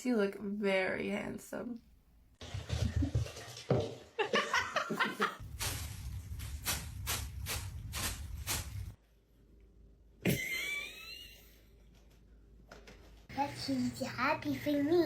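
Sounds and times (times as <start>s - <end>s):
person laughing: 4.2s - 5.4s, 10.2s - 11.6s.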